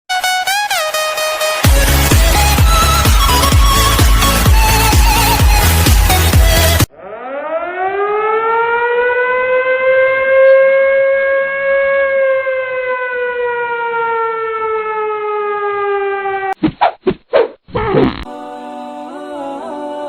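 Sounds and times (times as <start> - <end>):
siren wailing: 0.7 - 16.6.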